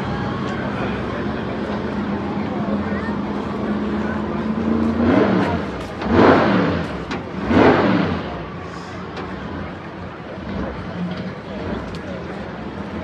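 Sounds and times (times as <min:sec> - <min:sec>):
jet engine revving: 0:04.6 - 0:09.7.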